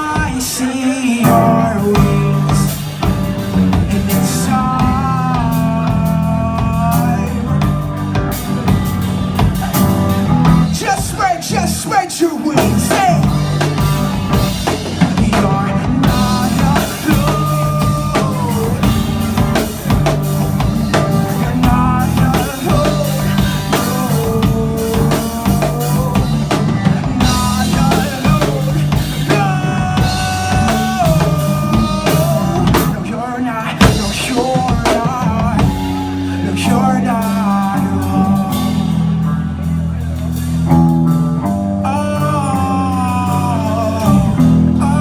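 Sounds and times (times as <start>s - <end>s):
bass guitar: 0.0s - 45.0s
drum kit beat: 0.0s - 45.0s
lead electric guitar bending notes: 12.6s - 45.0s.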